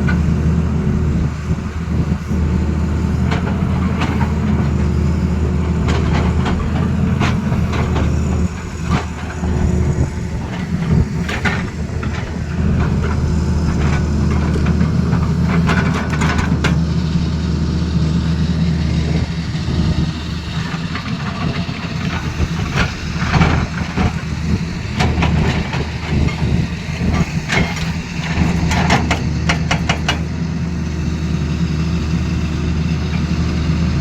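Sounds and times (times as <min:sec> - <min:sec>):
excavator diesel engine running: 0:00.0 - 0:34.0
irregular metal knocks and clanks: 0:25.0 - 0:30.3.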